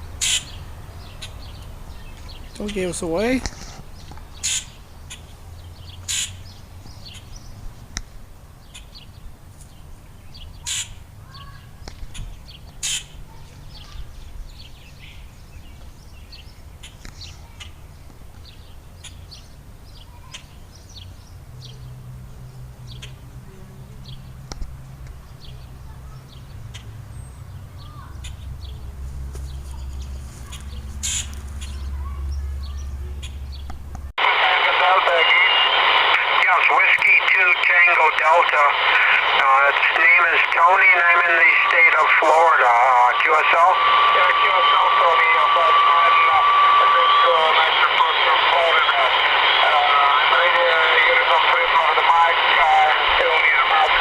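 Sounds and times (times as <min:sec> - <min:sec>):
loud sharp bird calls: 0:00.0 - 0:24.5, 0:25.2 - 0:33.7
birds chirping: 0:00.0 - 0:54.0.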